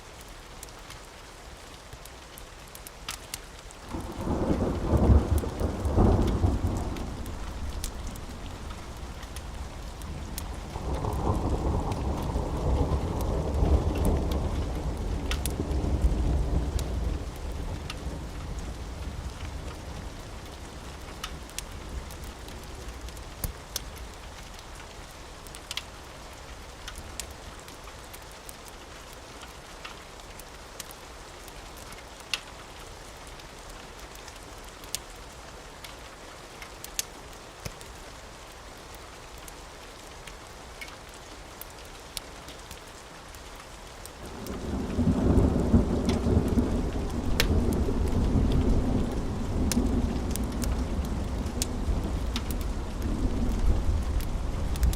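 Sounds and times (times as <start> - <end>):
steady rain: 0.0 - 54.9
rolling thunder: 3.9 - 19.3, 44.2 - 54.9
sharp pops and ticks: 47.2 - 48.7.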